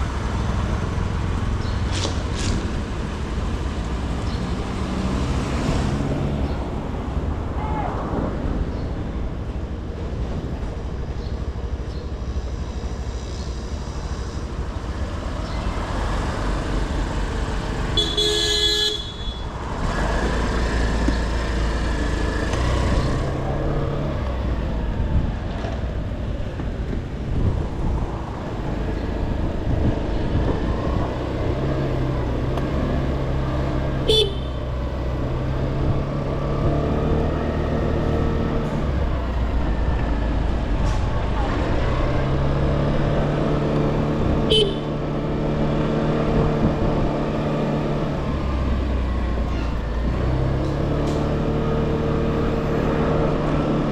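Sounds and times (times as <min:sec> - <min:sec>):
scooter horn toot: 0:18.0 - 0:19.5, 0:34.0 - 0:34.7, 0:44.5 - 0:44.9.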